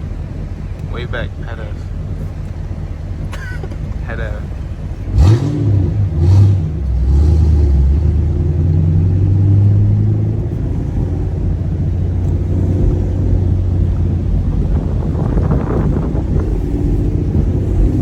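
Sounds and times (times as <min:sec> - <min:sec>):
car engine rumbling while cruising: 0:00.0 - 0:18.0.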